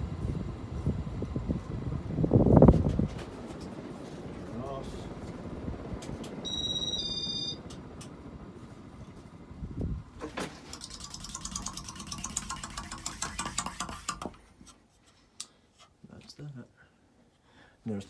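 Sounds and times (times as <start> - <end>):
ceiling fan rumbling: 0.0 - 14.8
two-tone electronic beep: 6.4 - 7.6
fast ticking rattle: 10.6 - 14.3.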